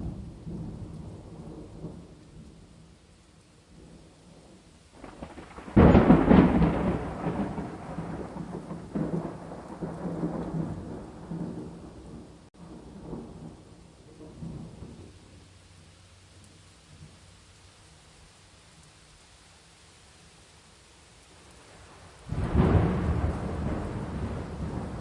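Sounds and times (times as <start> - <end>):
thunderclap rumbling: 0.0 - 2.8, 3.7 - 15.3, 21.7 - 25.0
steady rain: 0.0 - 25.0.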